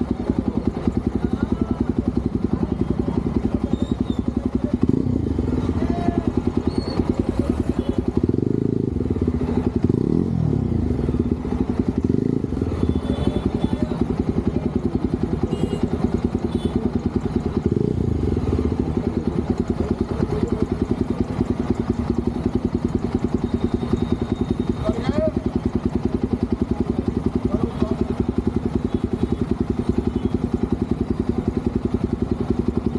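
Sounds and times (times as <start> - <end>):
motorcycle engine running: 0.0 - 32.9.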